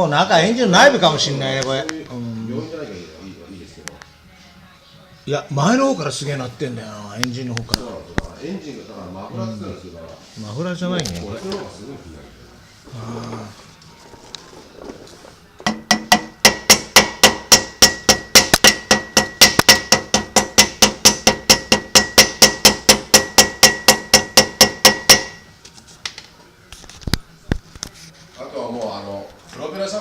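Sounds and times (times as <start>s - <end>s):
metallic engine ticking: 15.7s - 25.4s.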